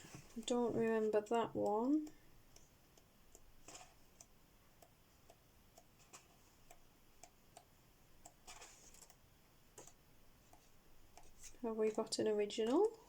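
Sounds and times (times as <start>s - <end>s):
faint ticking: 0.0s - 9.2s
paper pages rustling: 8.5s - 9.0s.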